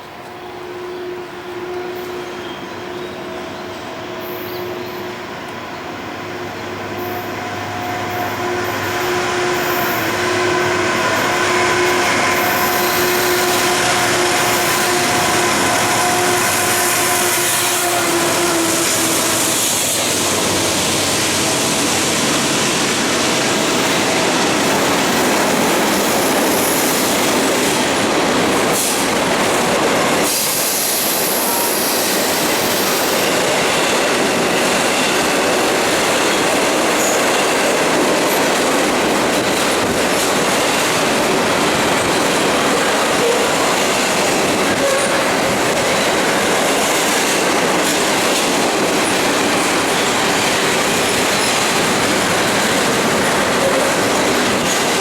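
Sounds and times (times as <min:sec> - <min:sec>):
diesel locomotives droning hum: 0:00.0 - 0:26.4
rumble and clatter of rail cars: 0:00.0 - 0:55.0.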